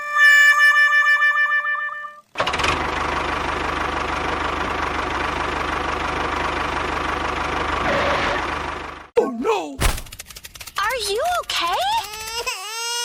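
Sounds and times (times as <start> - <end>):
tractor engine idling: 2.4 - 9.1.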